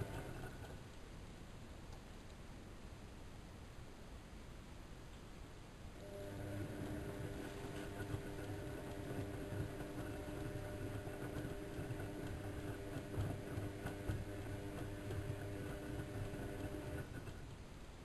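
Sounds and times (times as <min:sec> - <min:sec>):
washing machine motor hum: 0:00.0 - 0:00.9, 0:06.0 - 0:17.7.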